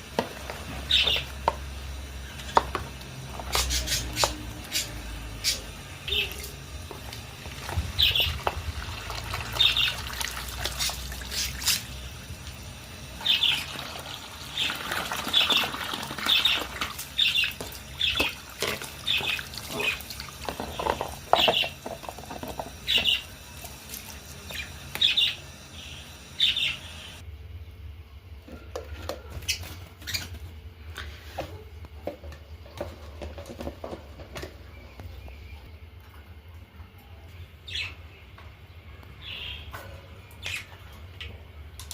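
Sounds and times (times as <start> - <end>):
budgerigars chirping: 0.9 - 1.3, 3.5 - 6.3, 9.6 - 10.0, 24.5 - 27.2.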